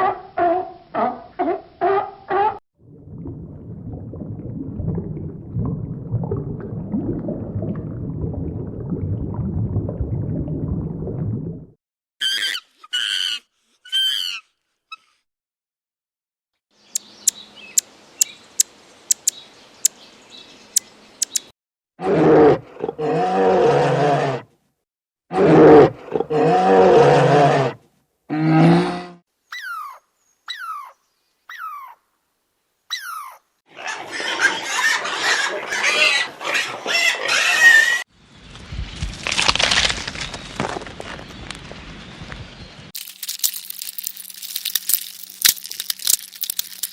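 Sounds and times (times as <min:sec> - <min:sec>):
sharp animal ticks: 0:16.9 - 0:20.0, 0:20.8 - 0:21.5
rustling: 0:43.0 - 0:46.9.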